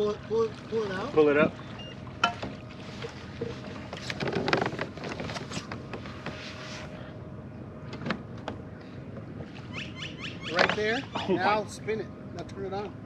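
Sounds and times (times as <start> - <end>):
trolling motor knocking on hull: 1.7 - 2.6, 3.8 - 6.3.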